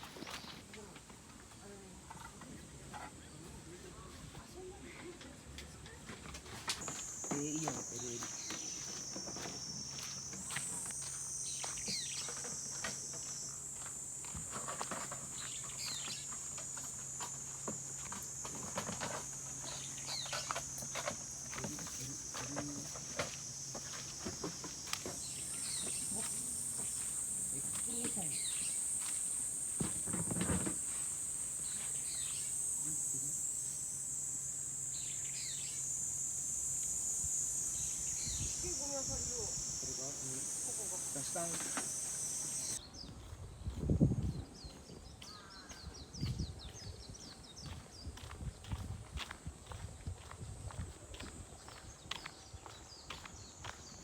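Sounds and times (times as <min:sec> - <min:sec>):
high-pitched insect chorus: 0:06.5 - 0:42.8, 0:45.3 - 0:54.0
short chirping calls: 0:11.2 - 0:13.6, 0:30.8 - 0:42.8.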